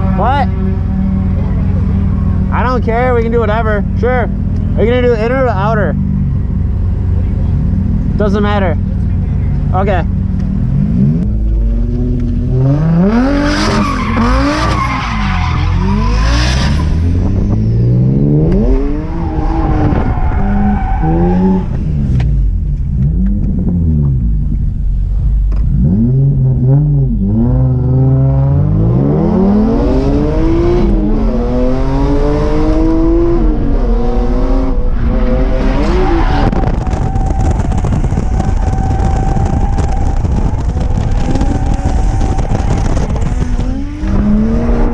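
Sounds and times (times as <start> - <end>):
car engine revving: 0.0 - 44.9
tires squealing: 12.6 - 17.6, 18.3 - 21.9, 29.1 - 44.9.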